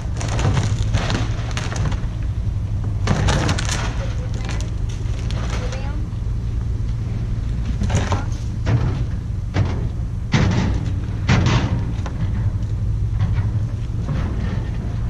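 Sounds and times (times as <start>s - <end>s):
heavy thuds and knocks: 0.0s - 4.6s, 7.7s - 15.0s
low engine rumble: 0.0s - 15.0s.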